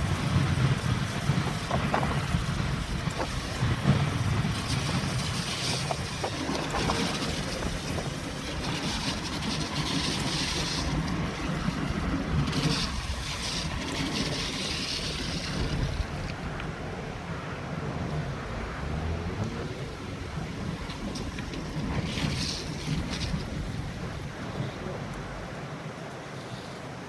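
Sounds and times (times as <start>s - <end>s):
car tyres on wet road: 0.0s - 27.0s.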